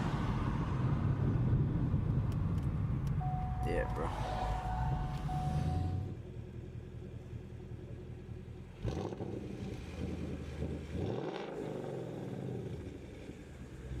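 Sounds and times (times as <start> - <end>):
car engine accelerating hard: 3.7 - 6.2.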